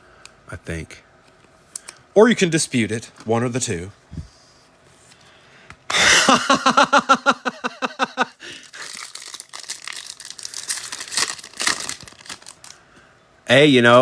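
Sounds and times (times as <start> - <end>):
foil wrapper crinkling and tearing: 8.6 - 12.8.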